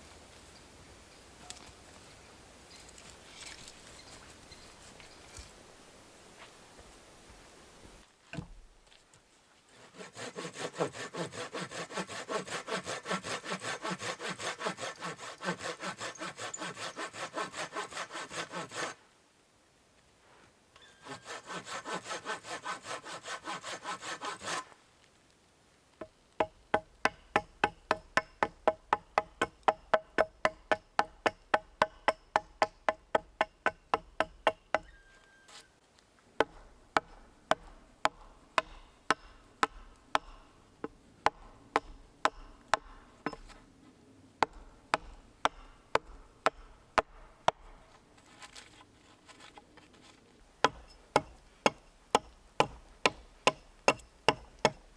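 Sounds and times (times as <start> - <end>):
hand saw cutting wood: 9.7 - 19.0, 21.0 - 24.8.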